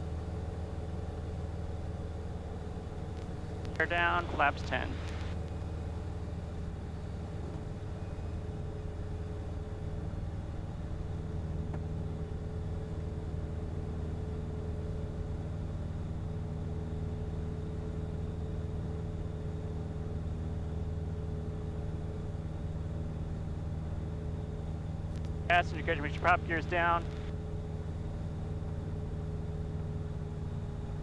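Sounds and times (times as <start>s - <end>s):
propeller plane engine drone: 0.0s - 11.0s, 25.5s - 27.3s.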